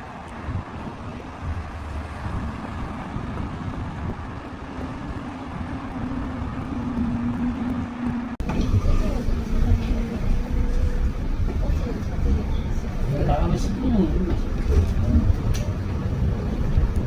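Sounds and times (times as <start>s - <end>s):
vehicle rumble: 0.0s - 17.0s.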